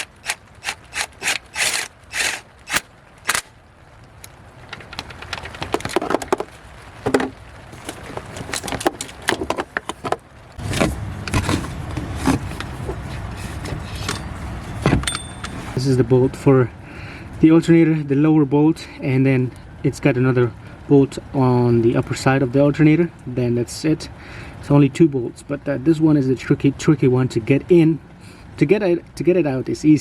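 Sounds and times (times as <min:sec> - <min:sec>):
ratchet wrench clicking: 0:00.0 - 0:03.4
metal clinks and tool knocks: 0:13.4 - 0:15.8.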